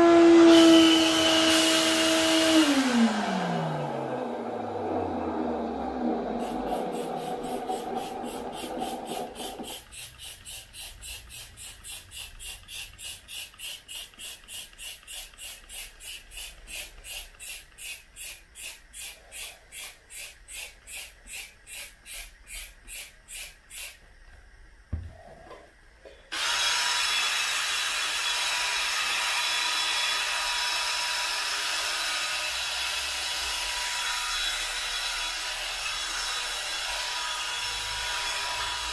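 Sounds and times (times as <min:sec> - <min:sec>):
vacuum motor winding down: 0:00.0 - 0:14.8.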